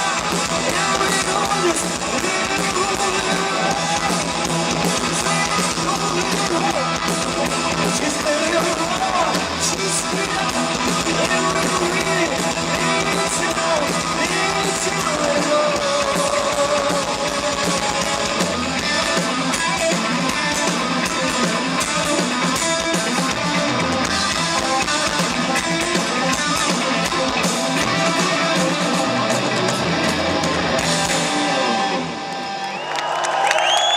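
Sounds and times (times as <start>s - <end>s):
person singing: 0.0s - 21.6s
drum kit: 0.0s - 32.2s
bass guitar: 0.0s - 32.8s
distorted electric guitars: 0.0s - 32.9s.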